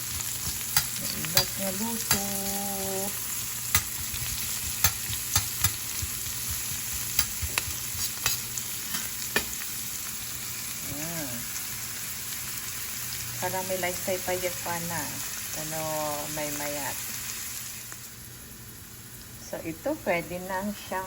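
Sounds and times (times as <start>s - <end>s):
onion sizzling in hot oil: 0.0s - 21.0s
spatula scraping a pan: 3.7s - 9.5s.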